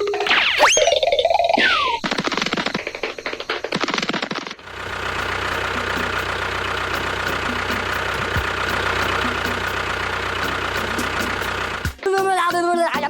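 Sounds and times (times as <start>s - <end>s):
motor running: 4.6s - 12.0s.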